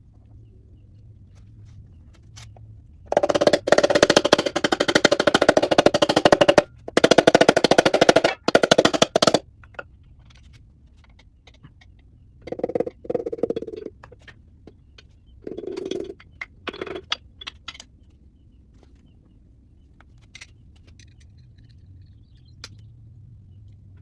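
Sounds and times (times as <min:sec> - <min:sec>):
impact wrench rattling: 0:03.1 - 0:09.4.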